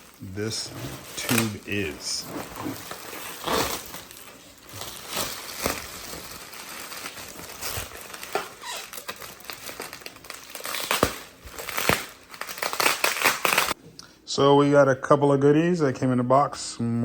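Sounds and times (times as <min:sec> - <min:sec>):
wrapping crinkling and rustling: 0:00.0 - 0:13.8.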